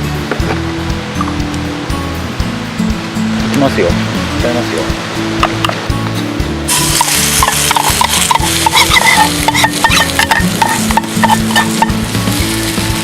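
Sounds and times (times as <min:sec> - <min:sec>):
batter sizzling on a hot pan: 0:06.7 - 0:13.0.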